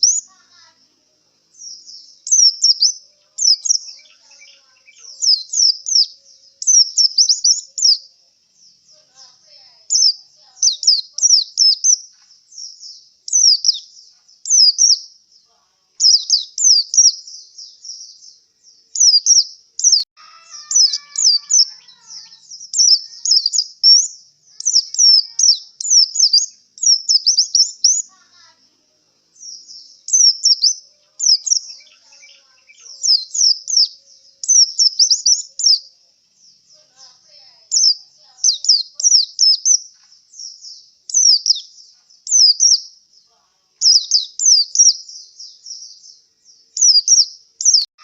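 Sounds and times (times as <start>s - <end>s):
bird singing high chirps: 0.0s - 47.9s.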